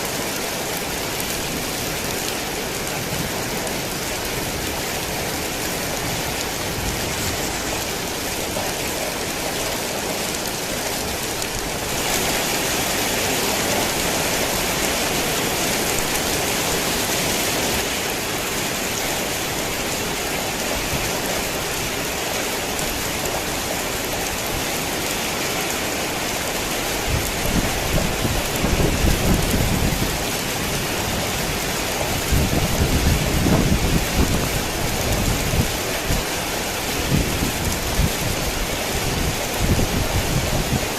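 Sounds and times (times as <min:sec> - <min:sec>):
heavy rain falling: 0:00.0 - 0:40.9
thunder rumbling: 0:27.0 - 0:36.3.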